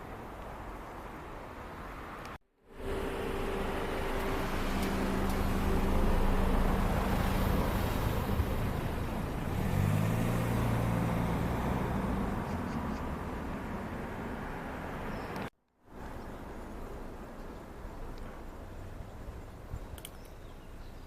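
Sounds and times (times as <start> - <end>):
vehicles passing on road: 0.0 - 21.0
vehicle engine rising: 2.6 - 13.7.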